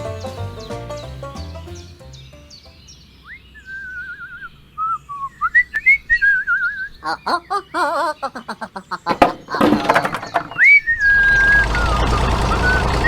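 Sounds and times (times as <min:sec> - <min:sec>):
whistled warbling tones: 0:03.2 - 0:13.0.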